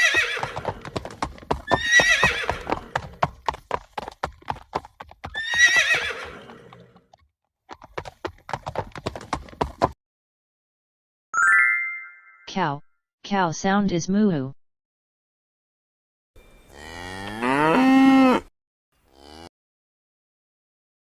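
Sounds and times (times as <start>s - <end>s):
horse neighing: 0.0s - 1.0s, 1.6s - 3.2s, 5.3s - 7.0s, 16.7s - 18.5s
hooves clip-clopping: 0.0s - 10.0s.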